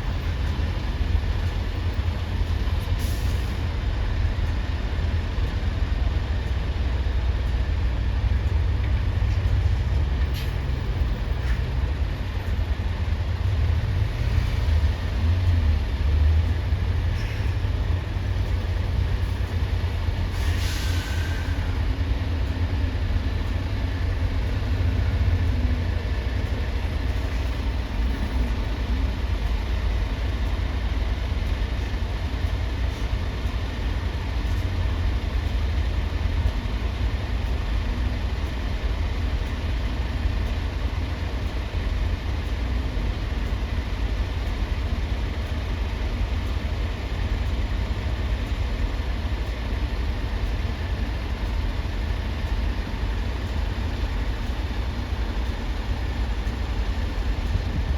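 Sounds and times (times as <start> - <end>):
heavy vehicle engines rumbling: 0.0 - 57.9
short hiss: 20.3 - 21.6.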